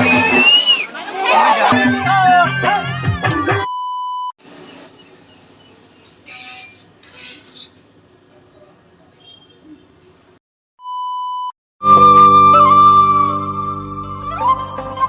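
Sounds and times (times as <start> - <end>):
electronic beep tone: 10.8 - 11.5.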